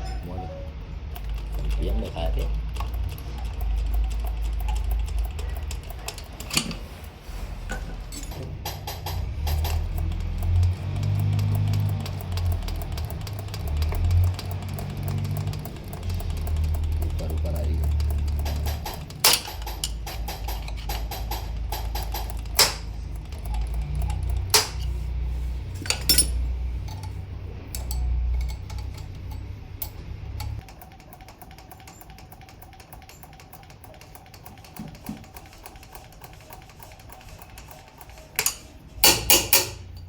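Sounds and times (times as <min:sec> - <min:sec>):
metal tools clinking: 0:06.0 - 0:06.9, 0:07.7 - 0:09.9, 0:18.3 - 0:25.0, 0:25.6 - 0:30.6, 0:38.4 - 0:40.0.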